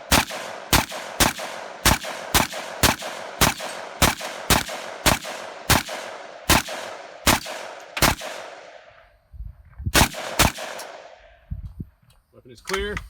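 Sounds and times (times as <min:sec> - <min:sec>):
rifle firing rapidly: 0:00.0 - 0:08.8, 0:10.0 - 0:11.2.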